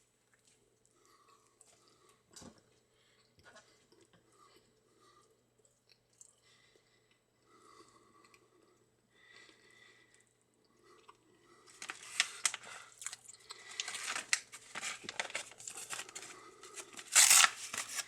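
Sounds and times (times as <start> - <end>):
paper rustling and crunching: 11.8 - 12.7, 13.7 - 18.0.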